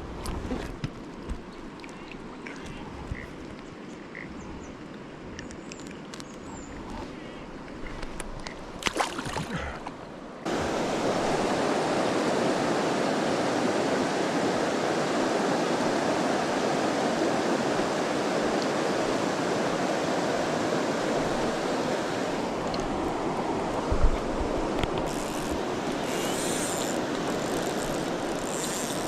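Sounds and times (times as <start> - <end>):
river water rushing: 10.4 - 29.0.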